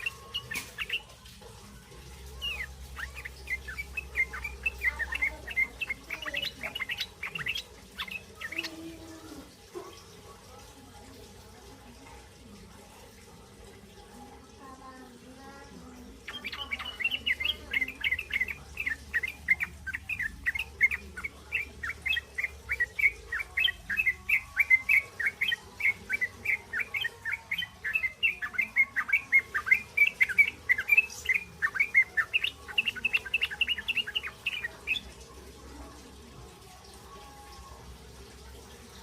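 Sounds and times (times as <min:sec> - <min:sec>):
bulbul chirping chatter: 0:00.0 - 0:01.4, 0:02.0 - 0:09.3, 0:16.2 - 0:35.3.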